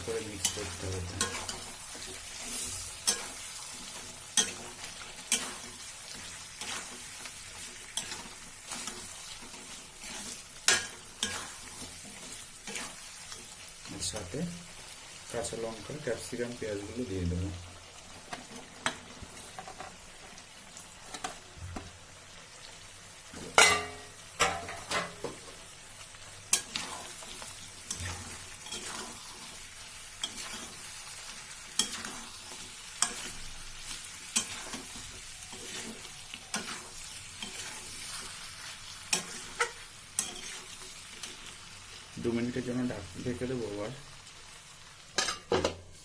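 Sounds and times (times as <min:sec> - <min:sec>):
spatula scraping a pan: 0:00.0 - 0:14.3, 0:26.5 - 0:41.6
food sizzling in a pan: 0:00.0 - 0:46.0.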